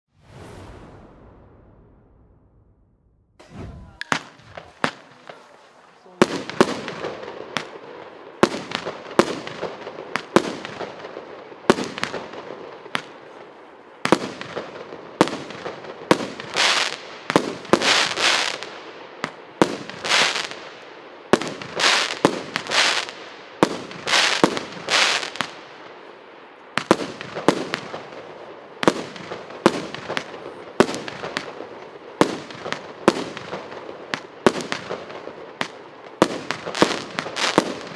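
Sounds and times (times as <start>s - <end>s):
firework whistling tails: 0.1s - 7.0s.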